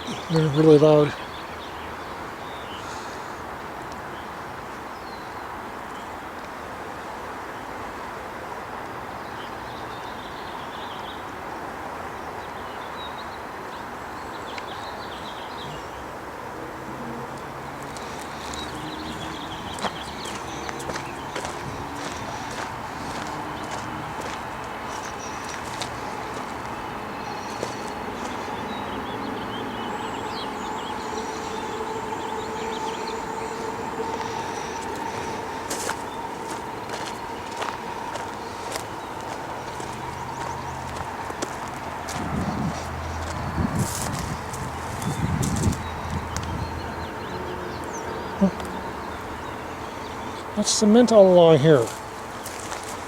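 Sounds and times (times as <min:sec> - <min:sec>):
distant vehicle rumble: 0:00.0 - 0:04.7, 0:14.9 - 0:53.0
small birds chirping: 0:00.0 - 0:06.2, 0:12.1 - 0:16.2, 0:17.1 - 0:53.0
steady outdoor rushing noise: 0:00.0 - 0:10.4, 0:11.4 - 0:53.0
constant hum: 0:17.0 - 0:53.0.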